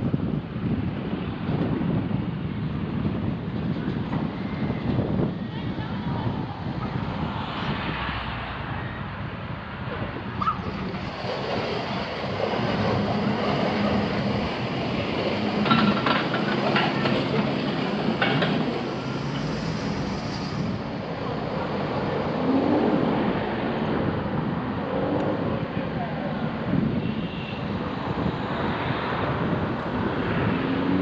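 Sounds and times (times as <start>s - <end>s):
car road noise: 0.0s - 31.0s.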